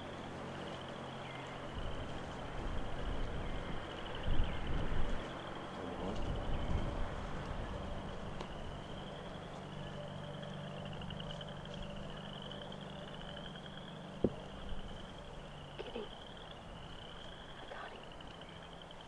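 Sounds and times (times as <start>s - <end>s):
distant frog chorus trilling: 0.0s - 19.0s
low steady hum: 0.0s - 19.0s.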